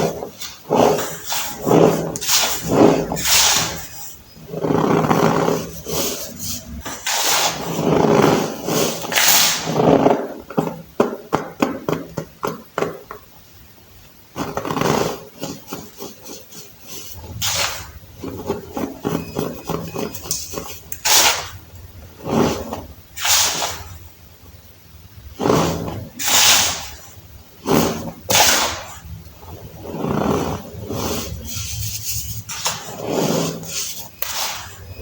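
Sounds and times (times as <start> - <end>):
baking soda crunching and squeaking: 0.0 - 12.1, 14.3 - 35.0.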